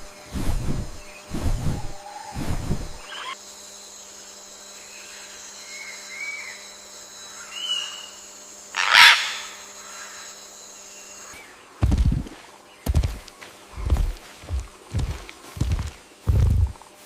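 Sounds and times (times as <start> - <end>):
faint high hum: 0.0 - 17.0
faint bird chirps: 1.0 - 3.4, 4.8 - 11.7.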